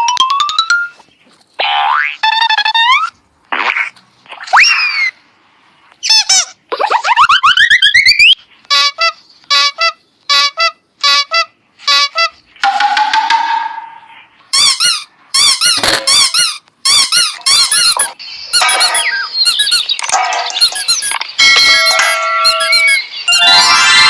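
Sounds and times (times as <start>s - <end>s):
short squeaky cartoon notes: 13.8s - 24.0s
squeaky high-pitched cries: 14.5s - 24.0s.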